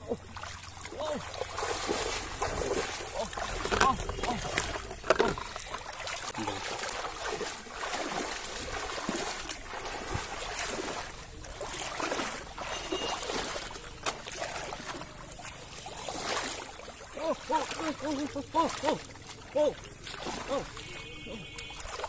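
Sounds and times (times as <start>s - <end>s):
water splashing and sloshing: 0.0s - 22.0s.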